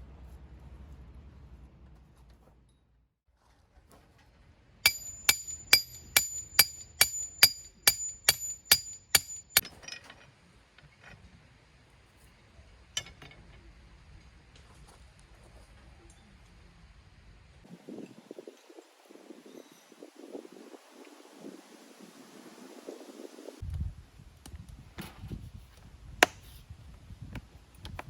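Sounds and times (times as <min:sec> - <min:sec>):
hammer striking metal peg: 0:04.9 - 0:09.6.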